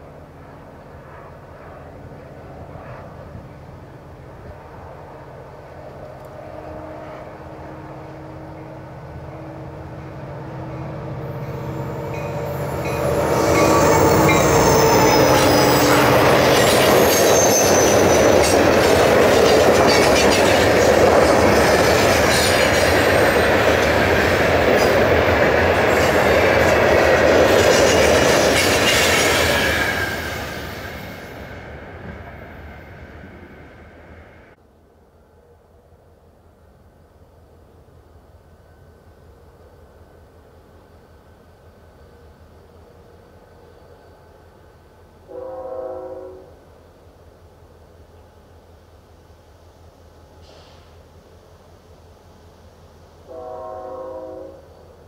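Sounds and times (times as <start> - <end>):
diesel locomotive engine drone: 0.0 - 55.0
squealing train wheels: 10.7 - 34.6.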